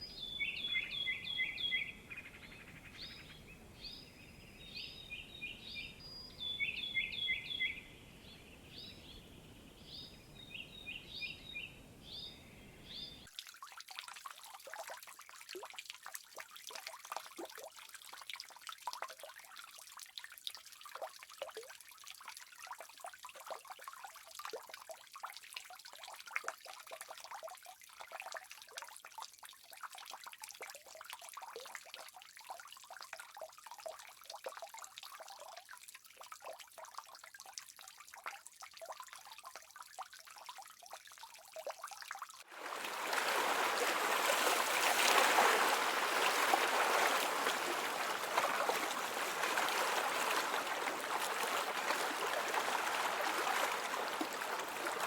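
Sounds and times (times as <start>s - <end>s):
water trickling and dripping: 9.8s - 55.0s
rush of flowing water: 42.4s - 55.0s.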